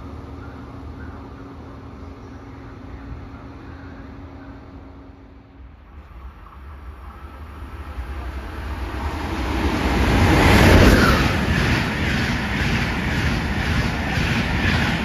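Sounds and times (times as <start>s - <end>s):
high-speed train passing: 0.0s - 15.0s.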